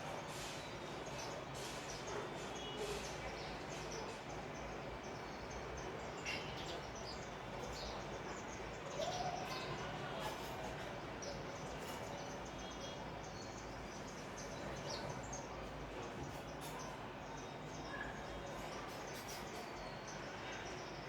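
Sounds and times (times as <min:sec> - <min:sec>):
sparrows chirping: 0:11.1 - 0:21.0.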